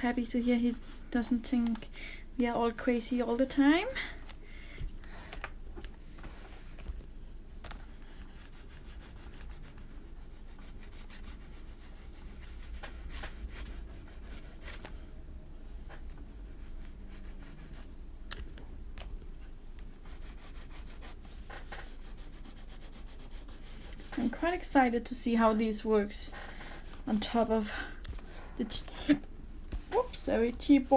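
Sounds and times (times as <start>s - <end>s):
crayon rubbing on paper: 7.9s - 14.8s, 16.3s - 18.0s, 19.9s - 27.7s.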